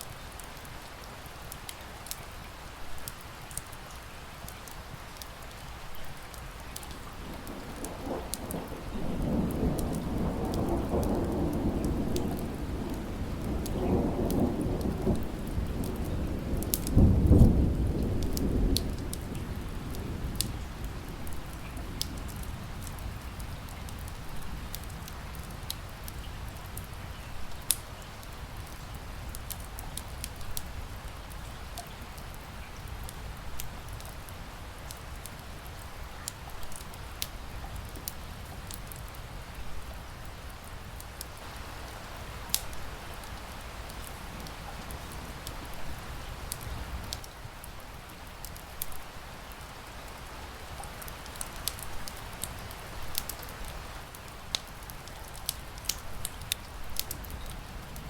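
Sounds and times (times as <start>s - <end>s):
steady rain: 0.0s - 58.0s
wood fire crackling: 1.4s - 58.0s
thunder rolling: 7.0s - 23.2s.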